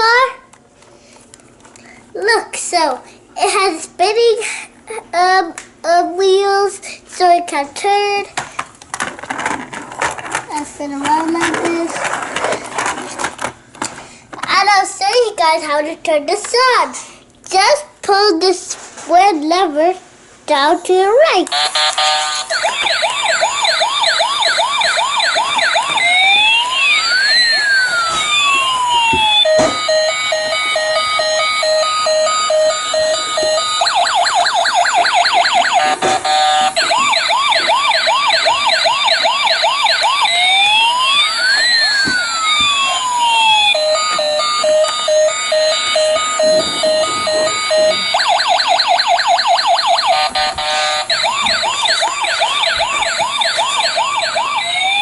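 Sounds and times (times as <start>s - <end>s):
toy electronic siren: 21.5s - 55.0s.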